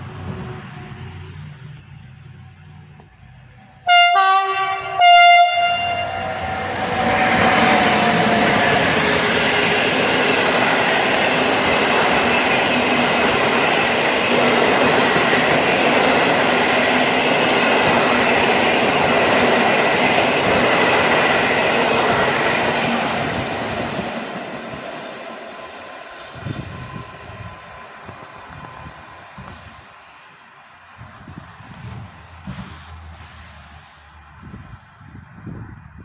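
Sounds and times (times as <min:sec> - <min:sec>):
electric train passing at speed: 0:00.0 - 0:36.0
wheels clickety-clack on rail: 0:06.2 - 0:25.4.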